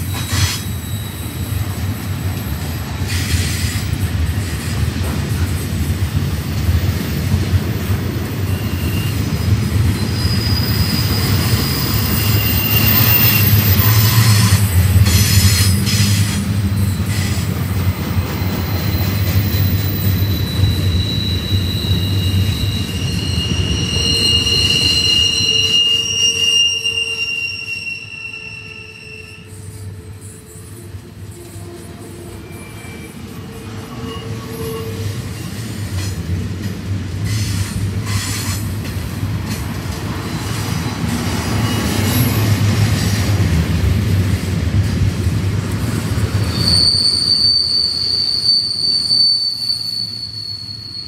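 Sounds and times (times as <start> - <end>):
low rumble of train wheels: 0.0 - 27.6
high-pitched wheel squeal: 0.1 - 1.7, 8.2 - 17.5, 18.4 - 35.6, 40.2 - 42.4, 46.4 - 51.0.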